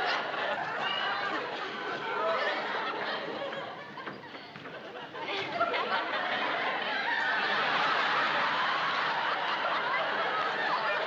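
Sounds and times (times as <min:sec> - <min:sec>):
audience laughing: 0:00.0 - 0:11.0.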